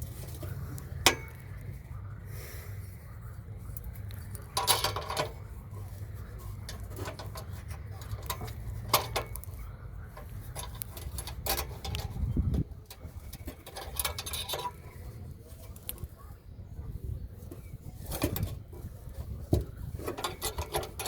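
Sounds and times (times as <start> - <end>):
steady low hum: 0.0 - 21.0
metal clinks and clatter: 4.5 - 5.5, 6.4 - 15.6, 18.0 - 21.0.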